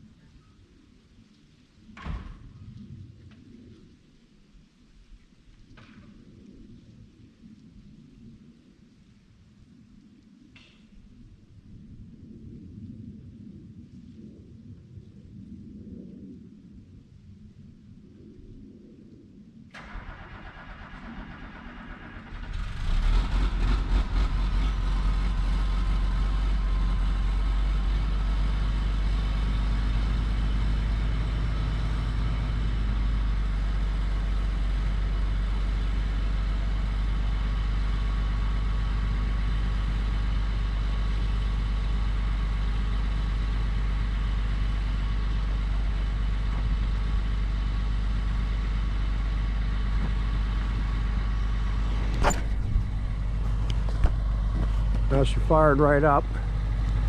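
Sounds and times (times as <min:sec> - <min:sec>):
diesel engine starting and idling: 0:19.7 - 0:57.0.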